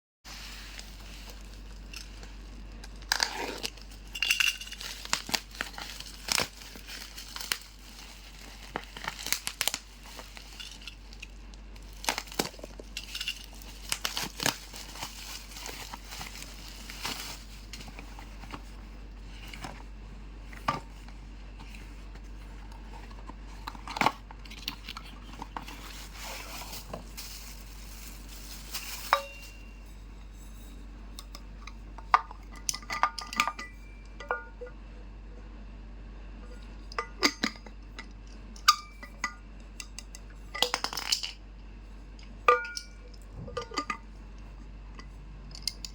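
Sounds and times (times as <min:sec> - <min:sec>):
packaging crinkling and tearing: 0:00.3 - 0:18.8, 0:22.8 - 0:29.6.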